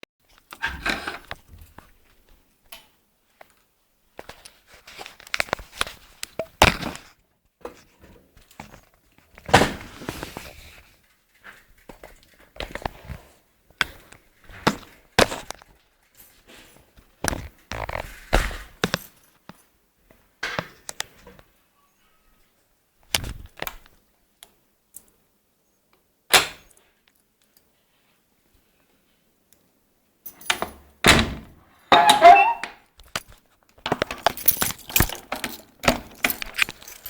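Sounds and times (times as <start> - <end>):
knocks and rattles of handled objects: 31.8 - 37.0.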